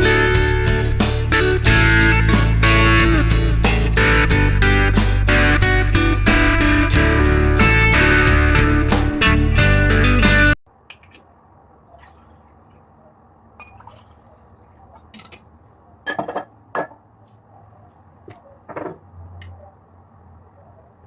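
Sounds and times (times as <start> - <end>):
dishes clinking and knocking: 16.0 - 17.0, 18.3 - 19.1.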